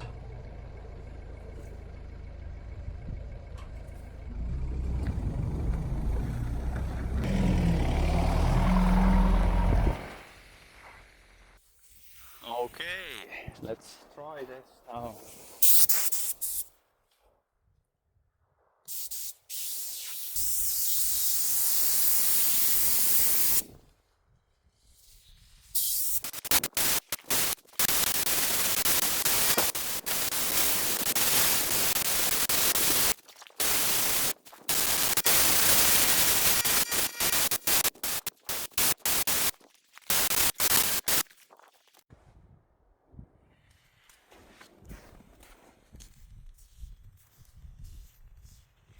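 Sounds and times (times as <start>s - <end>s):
paint spray hissing: 15.4s - 16.7s, 18.9s - 23.7s, 25.7s - 39.5s, 40.1s - 41.2s.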